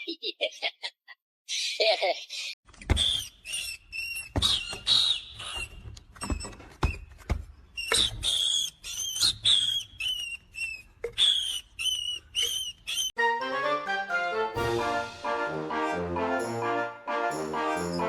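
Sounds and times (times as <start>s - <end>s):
small animal chirping: 7.8s - 13.1s.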